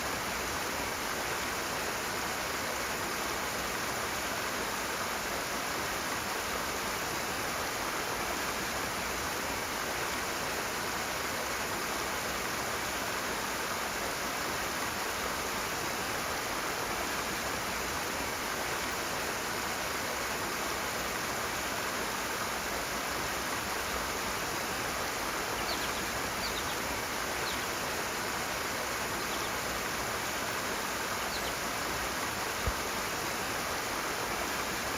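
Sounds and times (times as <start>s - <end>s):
stream water rushing: 0.0s - 34.9s
faint high bird chirps: 25.5s - 27.8s, 29.2s - 29.6s, 31.2s - 31.6s.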